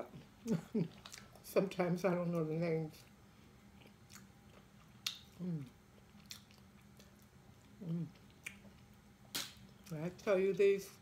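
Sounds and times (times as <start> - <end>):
person chewing: 0.2 - 1.4, 3.6 - 10.0
person humming: 5.4 - 5.7, 7.8 - 8.2.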